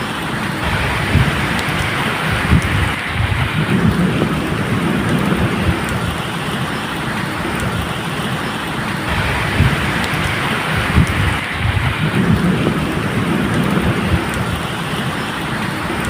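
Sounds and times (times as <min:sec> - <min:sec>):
distant thunder rumble: 0:00.0 - 0:16.0
steady rain falling: 0:00.0 - 0:16.0.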